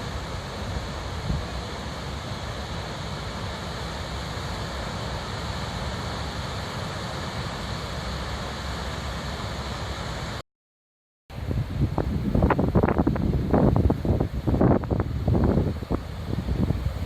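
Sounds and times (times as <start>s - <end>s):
steady rushing hiss: 0.0s - 10.4s, 11.4s - 17.0s
wind buffeting microphone: 11.4s - 17.0s.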